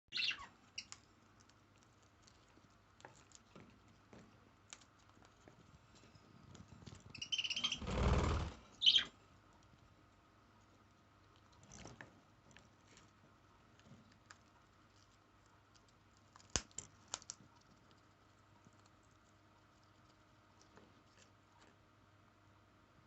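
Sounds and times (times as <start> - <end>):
parrot nibbling with beak: 0.4 - 7.4, 10.7 - 21.8.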